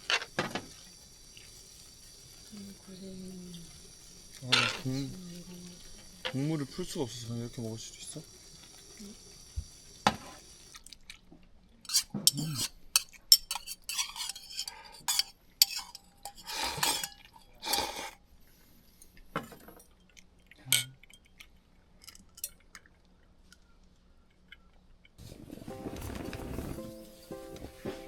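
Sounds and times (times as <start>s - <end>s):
cookware clinking and scraping: 4.3s - 5.2s, 11.8s - 18.2s, 19.4s - 21.3s.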